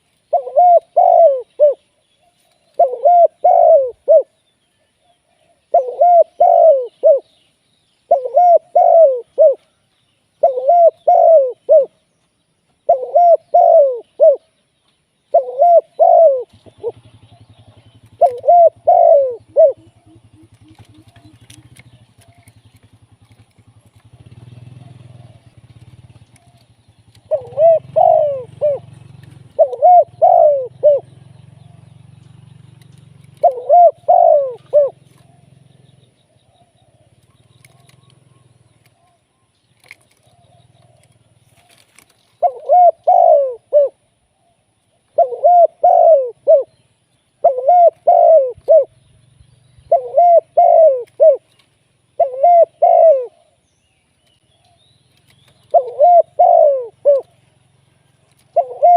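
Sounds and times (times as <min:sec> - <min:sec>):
dove cooing: 0:00.0 - 0:04.4, 0:05.0 - 0:07.4, 0:08.0 - 0:09.8, 0:10.4 - 0:12.1, 0:12.8 - 0:14.6, 0:15.3 - 0:49.2, 0:49.8 - 0:53.7, 0:54.6 - 0:58.9.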